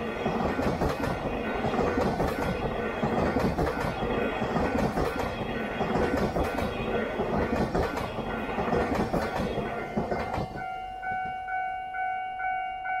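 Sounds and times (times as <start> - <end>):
train wheels clacking on rails: 0.0 - 11.4
level crossing bell ringing: 9.6 - 13.0.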